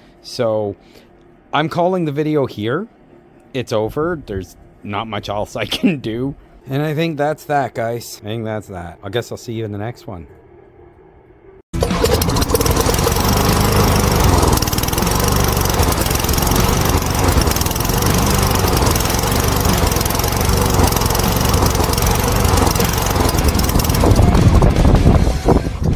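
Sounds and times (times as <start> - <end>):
lawn mower engine running: 11.8 - 25.9.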